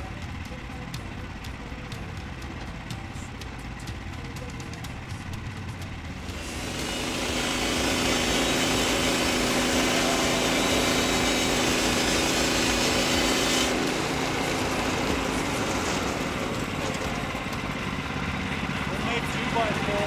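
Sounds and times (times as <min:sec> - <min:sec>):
engine running under load: 0:00.0 - 0:20.0
saw blade hissing through log: 0:06.2 - 0:17.4.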